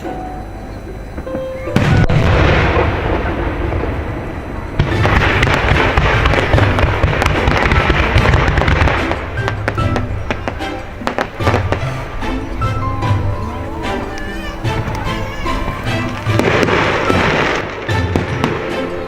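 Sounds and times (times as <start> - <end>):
firework crackling: 0.0 - 19.0
music: 0.0 - 19.0.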